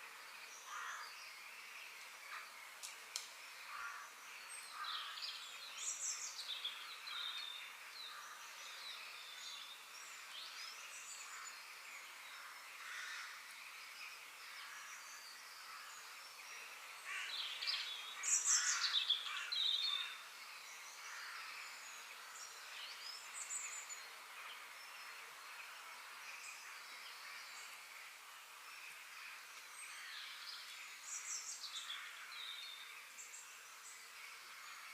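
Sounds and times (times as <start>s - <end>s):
steady outdoor hiss: 0.0s - 34.9s
birds chirping and singing: 0.2s - 27.9s, 28.7s - 34.9s.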